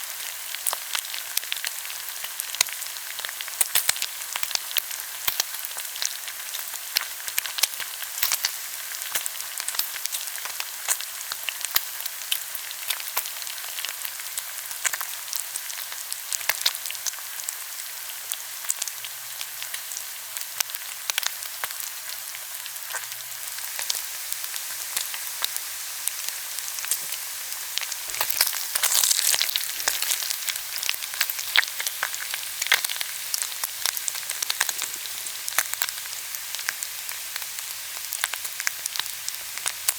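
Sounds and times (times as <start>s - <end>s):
meat sizzling on a grill: 0.0s - 39.9s.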